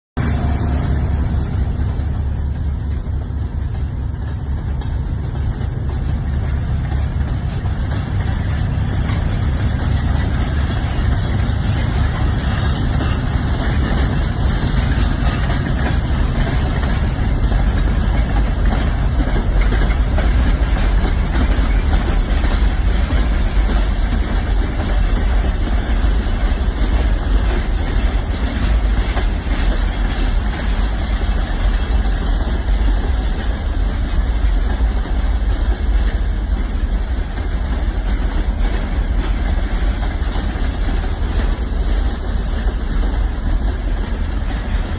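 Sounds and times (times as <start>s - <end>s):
freight train rumbling by: 0.2s - 44.9s.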